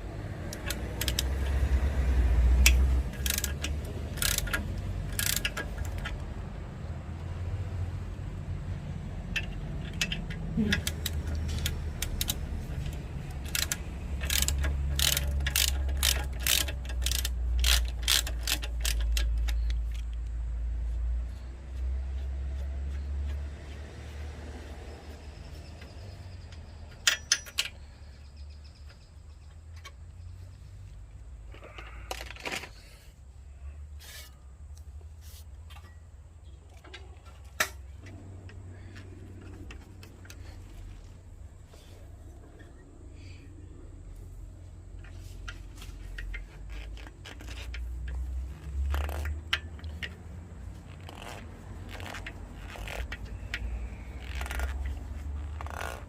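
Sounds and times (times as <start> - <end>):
ratchet wrench clicking: 0.4 - 6.3, 9.2 - 20.3, 25.6 - 28.5, 45.0 - 56.0.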